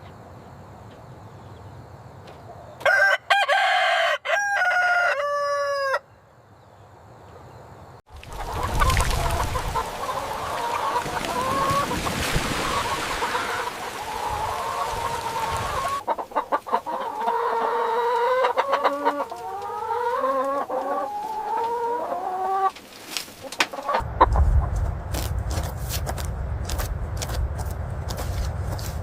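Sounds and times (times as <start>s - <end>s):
chickens clucking: 8.2s - 24.8s
low rumble: 24.0s - 29.0s.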